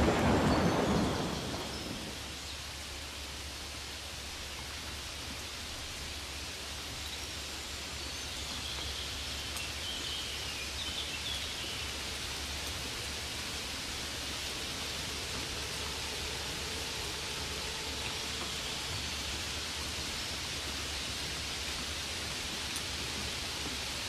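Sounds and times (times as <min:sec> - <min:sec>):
rain falling: 0:00.0 - 0:24.0.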